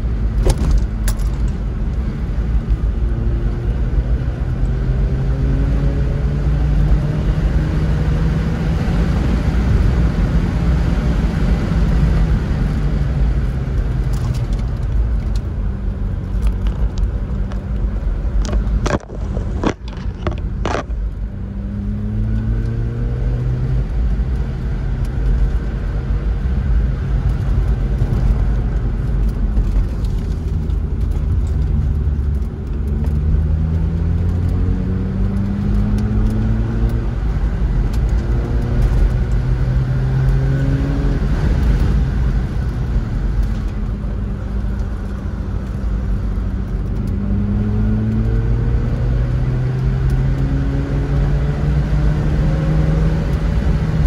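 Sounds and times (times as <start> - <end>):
car engine revving: 26.7 - 54.0.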